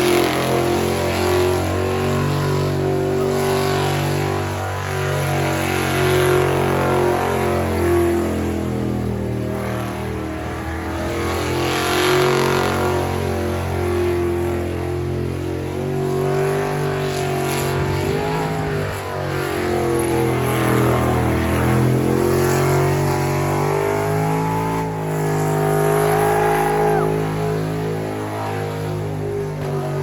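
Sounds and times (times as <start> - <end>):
engine revving high: 0.0 - 30.0
tyre and exhaust noise: 0.0 - 30.0.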